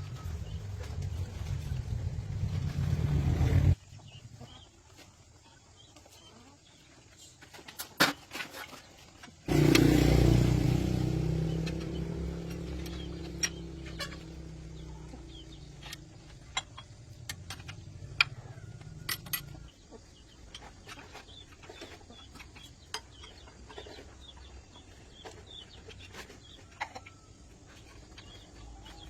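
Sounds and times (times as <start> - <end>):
engine starting and rumbling: 0.0 - 3.8, 9.5 - 21.8
sharp metallic clicks and knocks: 11.2 - 19.7.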